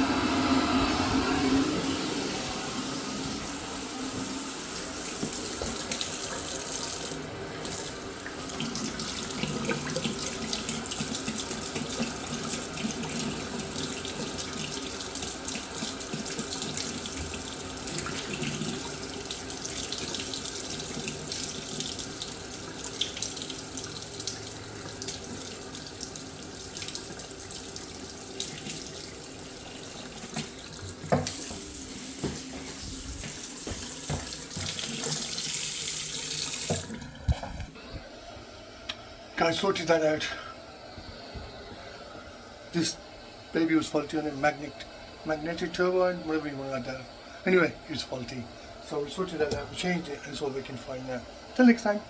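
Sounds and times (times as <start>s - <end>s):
tap running into sink: 4.1s - 7.8s, 29.8s - 37.7s.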